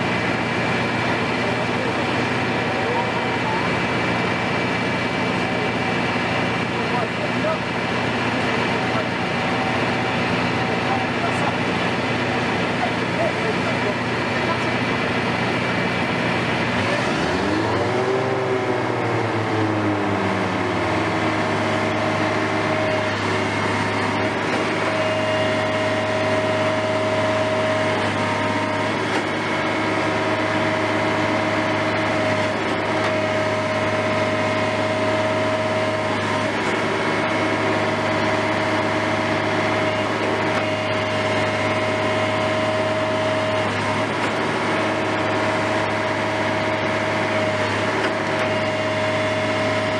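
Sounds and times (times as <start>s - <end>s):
construction machine engine running: 0.0s - 49.9s.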